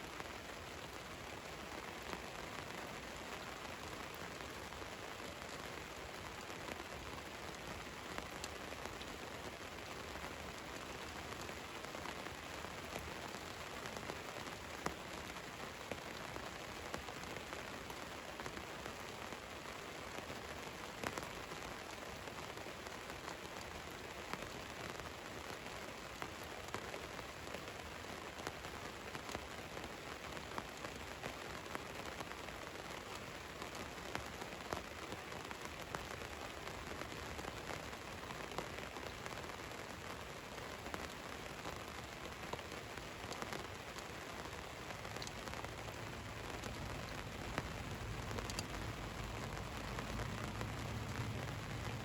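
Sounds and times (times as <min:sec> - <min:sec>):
rain on a vehicle roof: 0:00.0 - 0:52.0.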